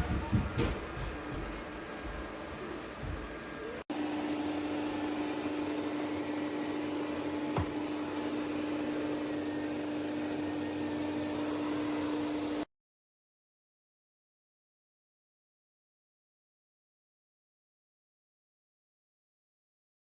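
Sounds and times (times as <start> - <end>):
robot vacuum motor hum: 3.9 - 12.7.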